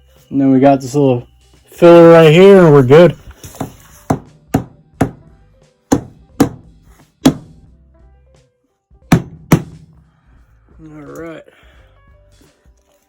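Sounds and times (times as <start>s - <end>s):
hammer striking nails into wood: 3.6s - 5.3s, 5.9s - 7.6s, 9.1s - 10.0s.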